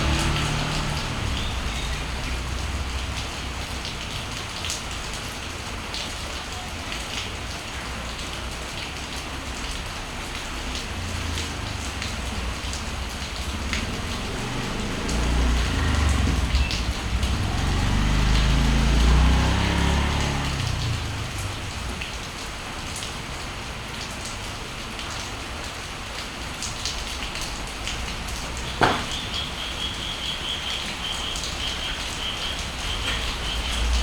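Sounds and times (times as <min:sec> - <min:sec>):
motorbike engine rumble: 0:00.0 - 0:03.6, 0:10.6 - 0:22.8, 0:27.6 - 0:34.0
steady rain falling: 0:00.0 - 0:34.0
bird chirping rapidly: 0:28.6 - 0:34.0
sharp knock: 0:28.8 - 0:29.2.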